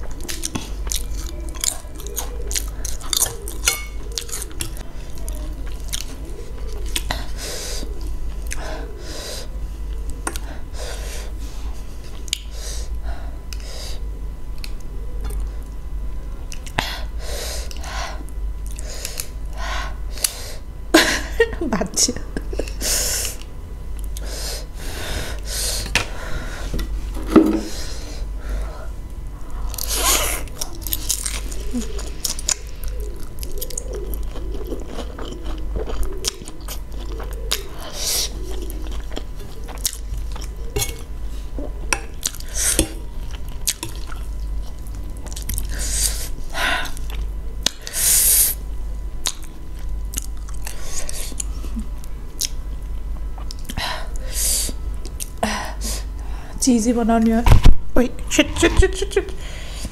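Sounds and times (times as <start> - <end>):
person chewing noodles: 0.0 - 14.0, 16.5 - 19.6, 29.4 - 48.6, 49.2 - 55.4
low steady hum: 0.0 - 59.9.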